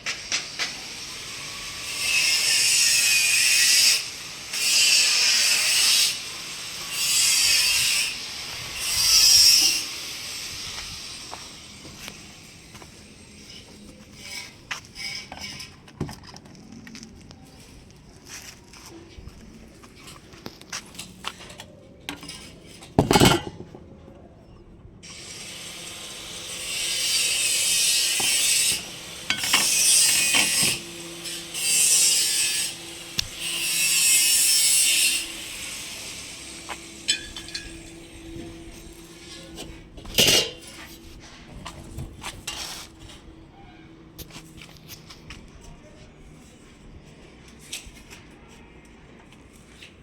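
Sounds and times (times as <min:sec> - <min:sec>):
harsh scraping noise: 0:13.0 - 0:19.2, 0:36.2 - 0:43.3.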